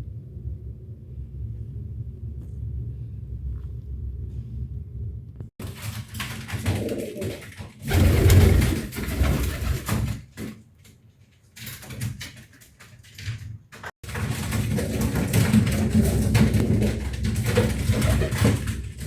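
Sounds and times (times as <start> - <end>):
pigeons cooing: 6.5 - 9.8.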